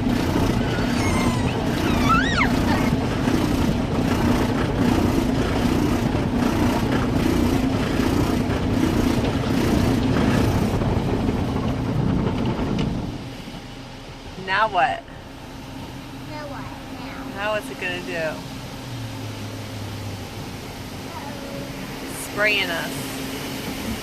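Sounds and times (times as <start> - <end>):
car wash brushes and water: 0.0 - 24.0
short high squeal: 0.6 - 3.0.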